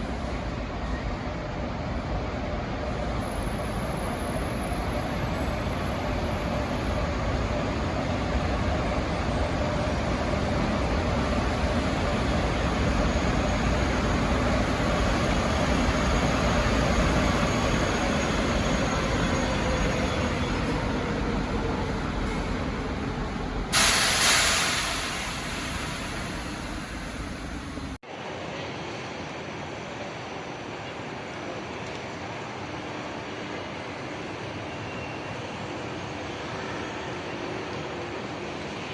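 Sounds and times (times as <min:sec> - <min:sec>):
loud burst of hiss: 0:23.7 - 0:27.8.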